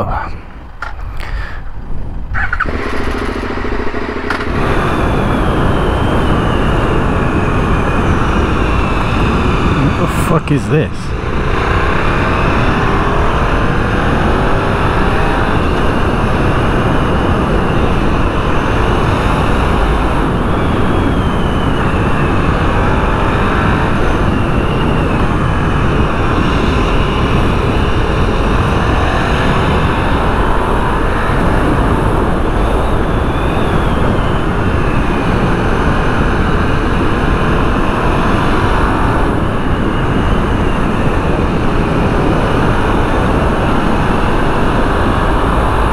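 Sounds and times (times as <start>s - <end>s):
wind rushing over microphone: 0.0s - 45.9s
motorcycle engine revving: 2.2s - 10.1s, 11.1s - 45.9s.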